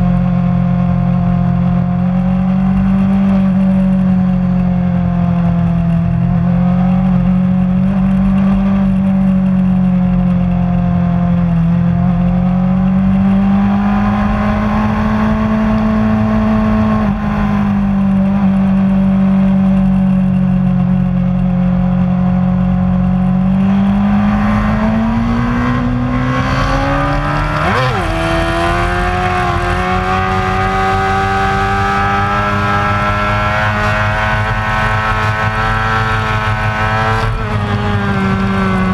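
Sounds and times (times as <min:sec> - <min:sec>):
motorcycle engine at high revs: 0:00.0 - 0:38.9.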